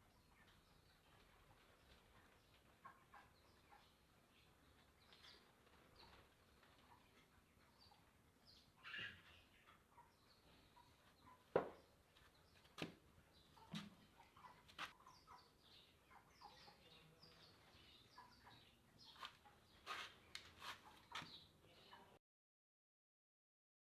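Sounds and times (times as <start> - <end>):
faint bird chirps: 7.8 - 11.5.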